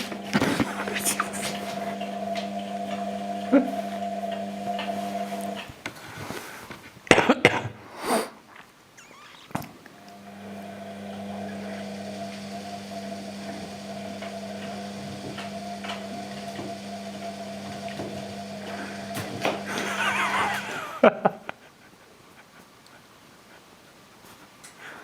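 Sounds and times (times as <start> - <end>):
washing machine motor hum: 0.0 - 6.1, 10.0 - 21.2.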